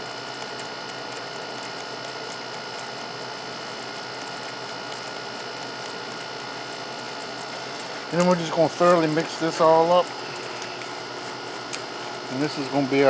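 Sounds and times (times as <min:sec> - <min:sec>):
mechanical whir: 0:00.0 - 0:13.0
thin whining tones: 0:07.1 - 0:13.0.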